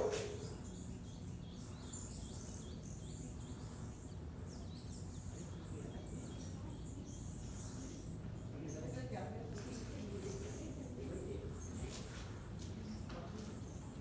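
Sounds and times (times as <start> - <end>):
birds chirping faintly: 0.0 - 14.0
steady low background noise: 0.0 - 14.0.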